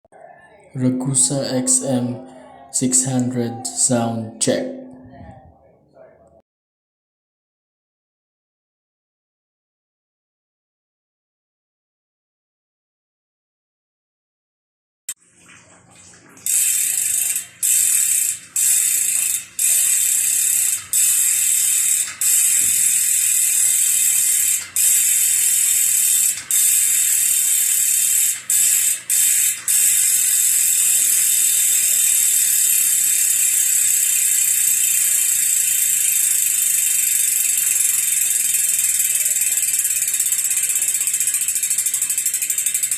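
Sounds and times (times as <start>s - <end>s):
bike hub freewheeling buzz: 16.4s - 42.9s.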